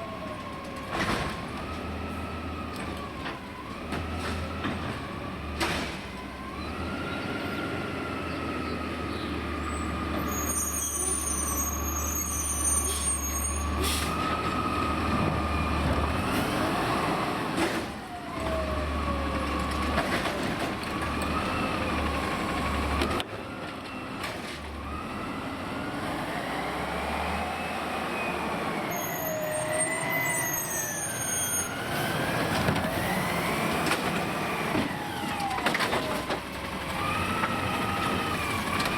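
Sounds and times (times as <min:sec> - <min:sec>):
garbage truck engine revving: 0:24.8 - 0:38.9.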